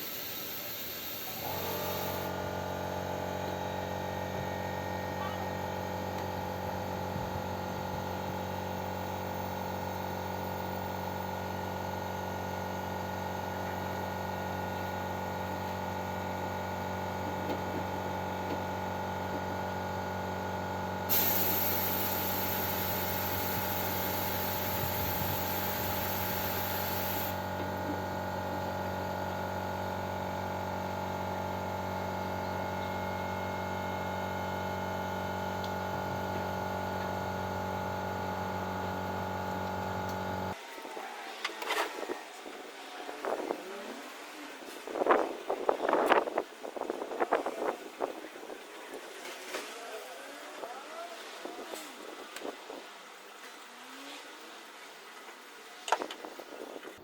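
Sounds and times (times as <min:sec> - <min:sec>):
loud spraying hiss: 0:00.0 - 0:02.3, 0:21.1 - 0:27.4
low electrical hum: 0:00.0 - 0:41.0.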